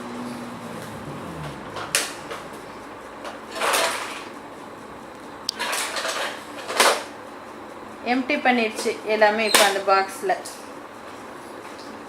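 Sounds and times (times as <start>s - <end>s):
plastic items sliding and rattling: 3.2s - 4.3s.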